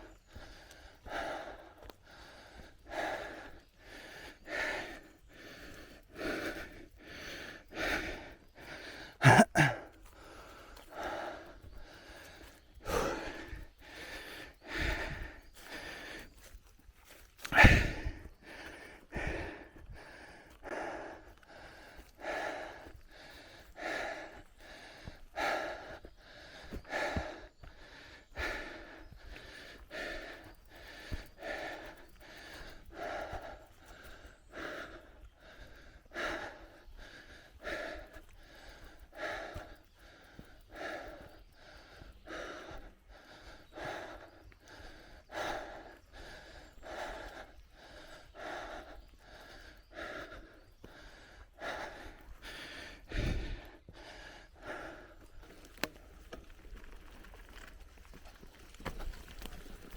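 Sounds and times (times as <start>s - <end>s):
person breathing hard: 0.0s - 57.6s
low rumble of bike: 50.4s - 59.9s.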